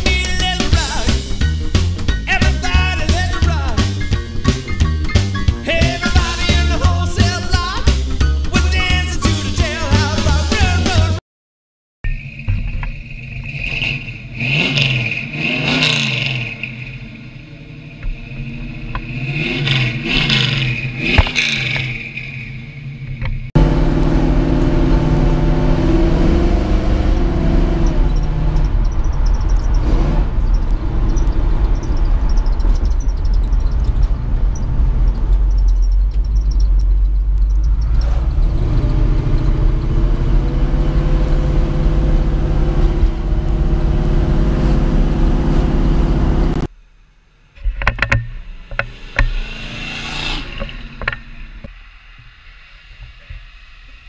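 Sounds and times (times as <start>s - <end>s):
car engine droning: 12.1s - 54.0s
sweeping pitch sound: 48.4s - 54.0s.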